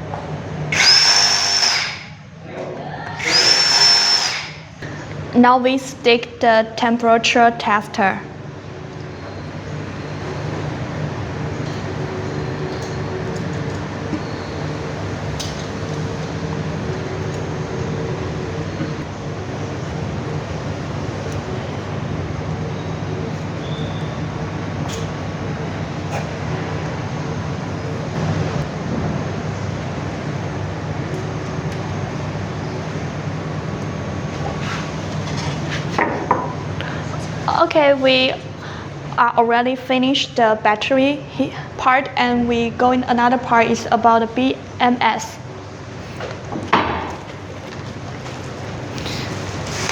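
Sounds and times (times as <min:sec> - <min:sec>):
machinery hum: 0:00.0 - 0:49.9.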